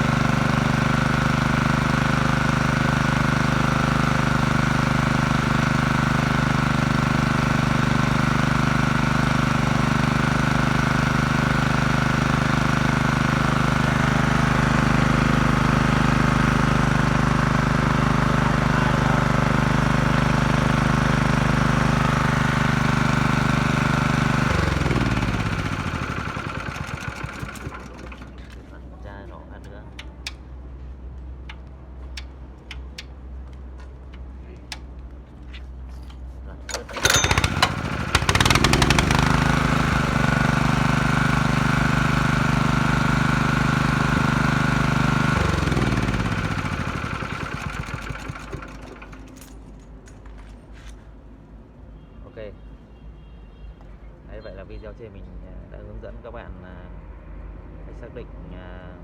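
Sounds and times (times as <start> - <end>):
engine spinning down: 0.0 - 28.6, 36.7 - 49.4
generator engine running: 0.0 - 30.0, 36.6 - 50.5.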